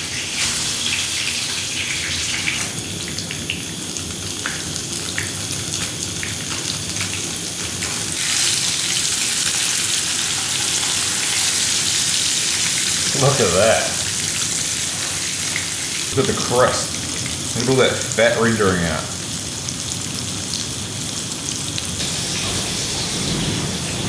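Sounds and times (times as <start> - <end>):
fish sizzling in a frying pan: 0.0 - 23.3
heavy rain on shelter: 11.6 - 14.7, 22.0 - 24.0.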